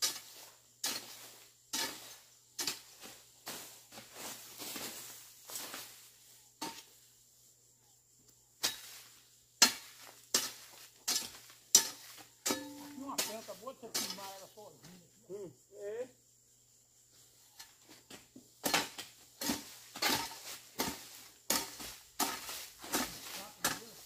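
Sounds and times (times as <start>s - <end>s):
hoe chopping into soil: 0.0s - 5.0s, 8.6s - 14.4s, 18.1s - 24.0s
person speaking: 12.8s - 16.2s.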